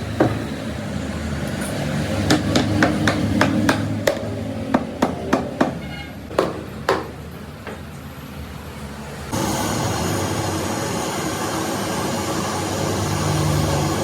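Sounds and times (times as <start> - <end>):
hammer strikes: 2.2 - 7.8.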